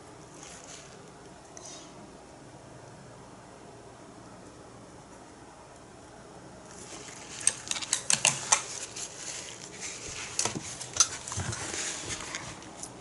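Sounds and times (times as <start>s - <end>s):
painting supplies clicking and clattering: 6.7s - 13.0s.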